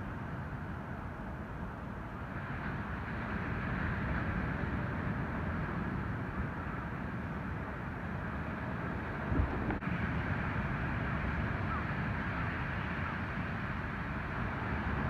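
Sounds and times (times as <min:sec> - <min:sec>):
waves breaking rumble: 0:00.0 - 0:15.0.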